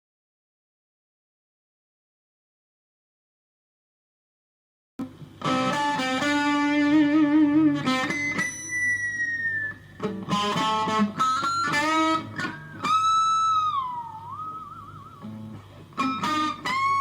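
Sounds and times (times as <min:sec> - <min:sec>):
electric guitar lead phrases: 0:05.0 - 0:17.0.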